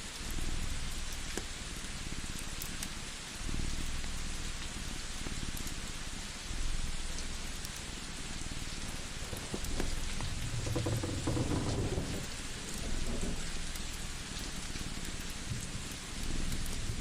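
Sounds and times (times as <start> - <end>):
rain-like hiss: 0.0 - 17.0
low rumble: 9.3 - 13.4.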